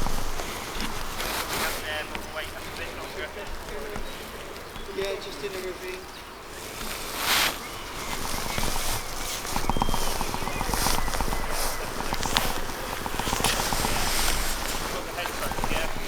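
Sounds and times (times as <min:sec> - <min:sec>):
footsteps in undergrowth: 0:00.0 - 0:16.0
rustling in undergrowth: 0:00.0 - 0:16.0
fast run of short ticks: 0:06.6 - 0:16.0.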